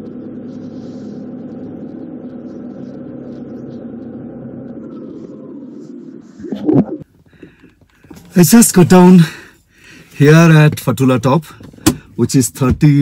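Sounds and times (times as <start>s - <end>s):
faint falling whine: 0.0s - 7.0s
car engine and road rumble: 0.0s - 13.0s.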